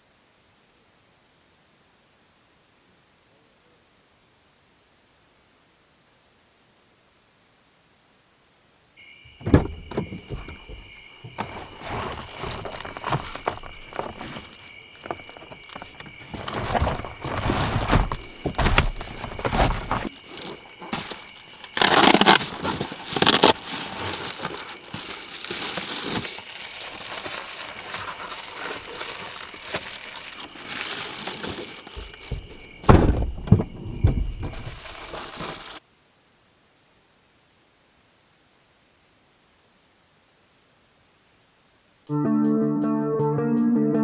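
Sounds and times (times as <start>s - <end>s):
kindling rustling and crunching: 9.3s - 35.8s.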